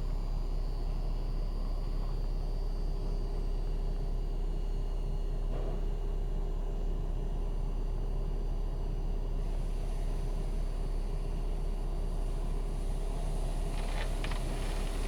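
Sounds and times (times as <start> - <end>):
car wash rumble and hum: 9.4 - 15.0.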